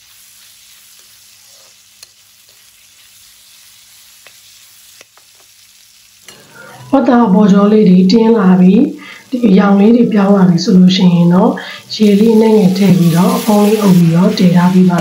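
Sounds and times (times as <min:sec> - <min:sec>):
pork sizzling in a wok: 0:00.0 - 0:15.0
spatula scraping a pan: 0:06.3 - 0:07.0, 0:11.9 - 0:15.0.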